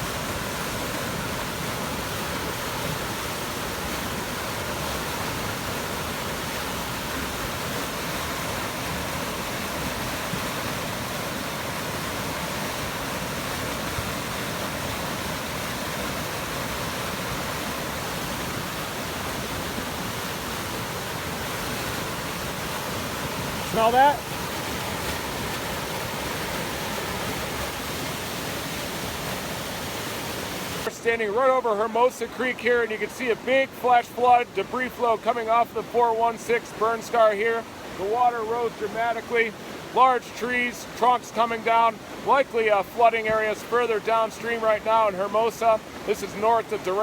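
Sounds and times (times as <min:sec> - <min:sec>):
floodwater roaring: 0:00.0 - 0:47.0.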